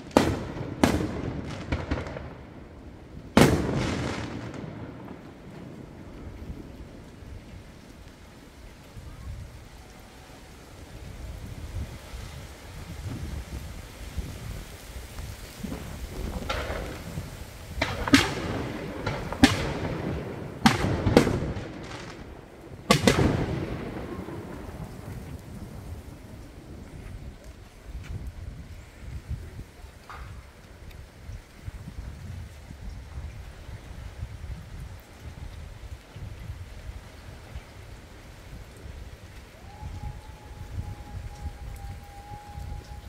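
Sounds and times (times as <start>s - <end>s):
fireworks bangs and cracks: 0.0s - 7.6s, 15.1s - 28.3s.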